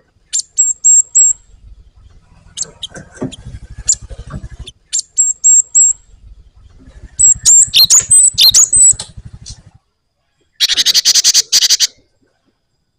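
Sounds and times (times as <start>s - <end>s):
bird singing whistled notes: 0.3s - 9.1s, 10.6s - 12.0s.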